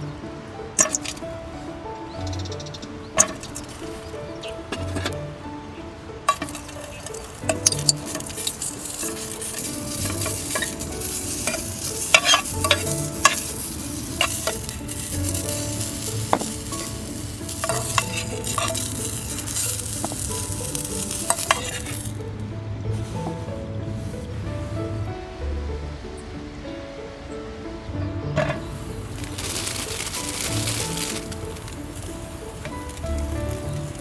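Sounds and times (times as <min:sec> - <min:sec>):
food sizzling in a frying pan: 0:00.8 - 0:01.2, 0:02.2 - 0:04.6, 0:06.3 - 0:22.3, 0:28.5 - 0:34.0.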